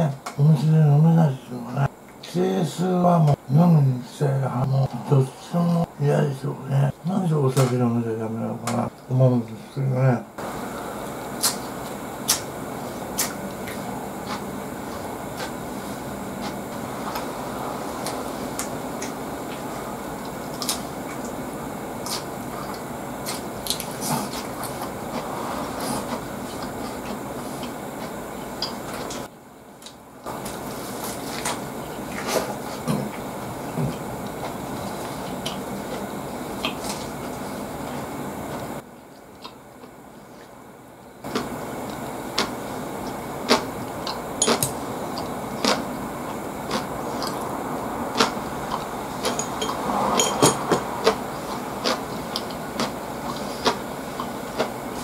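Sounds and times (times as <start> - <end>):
steady hiss: 0.0 - 55.0
man chewing with light crunching: 10.4 - 55.0
mouth clicks and crunches: 22.0 - 25.3, 41.3 - 47.5, 50.5 - 55.0.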